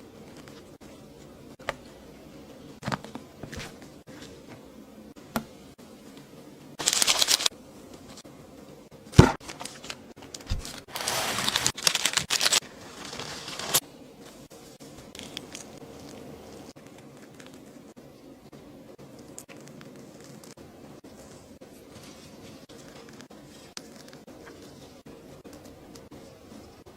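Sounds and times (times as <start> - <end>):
crinkling: 6.8 - 8.2, 9.1 - 18.1, 19.0 - 26.9.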